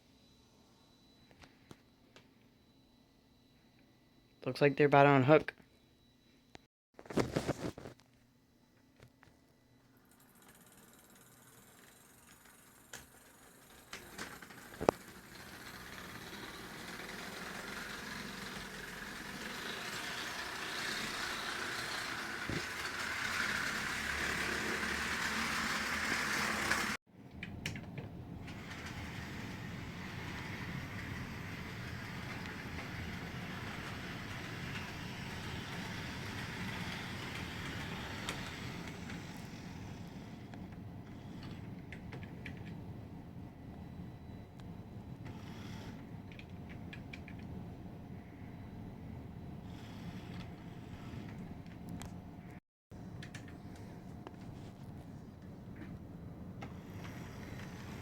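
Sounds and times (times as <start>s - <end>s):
model train running on track: 10.3s - 27.0s, 28.5s - 40.3s, 49.7s - 51.4s, 56.8s - 58.0s.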